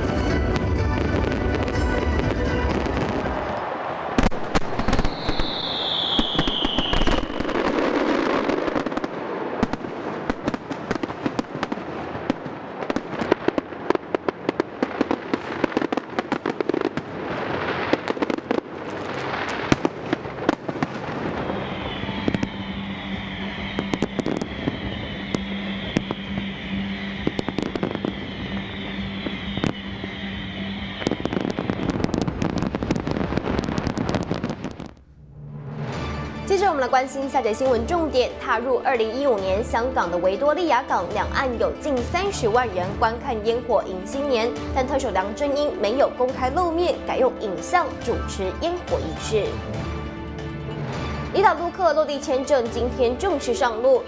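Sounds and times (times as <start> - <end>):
fireworks bangs and crackling: 0.0 - 35.1
firework whistling: 1.0 - 13.8, 14.8 - 36.2.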